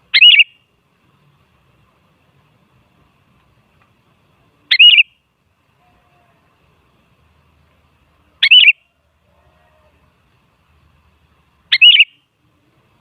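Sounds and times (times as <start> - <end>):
bulbul warbled calls: 0.1 - 0.6, 4.7 - 5.1, 8.4 - 8.8, 11.7 - 12.2.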